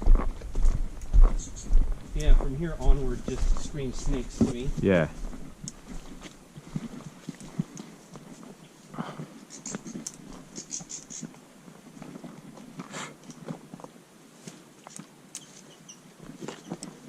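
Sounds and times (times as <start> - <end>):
footsteps in dry grass: 0.0 - 17.0
high bird chirps: 10.6 - 11.3.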